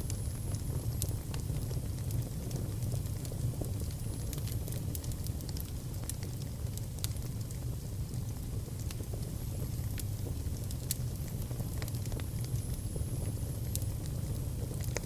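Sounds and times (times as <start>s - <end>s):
fire crackling and popping: 0.0s - 15.0s
fire rumbling in a fireplace: 0.0s - 15.0s.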